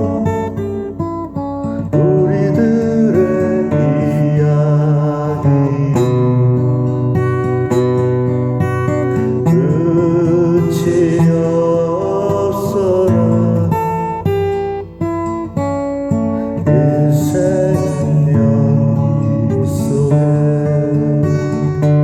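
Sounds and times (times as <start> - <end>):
acoustic guitar strumming: 0.0 - 22.0
person singing: 2.0 - 6.8, 9.4 - 14.0, 16.6 - 22.0.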